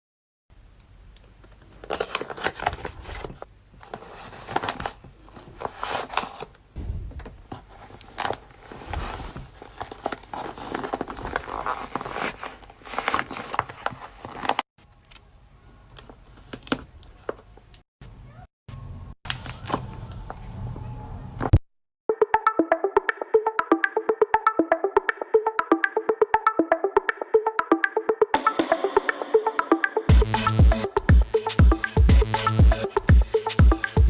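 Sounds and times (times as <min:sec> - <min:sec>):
paper crinkling and rustling: 0:01.4 - 0:06.6, 0:07.4 - 0:17.6.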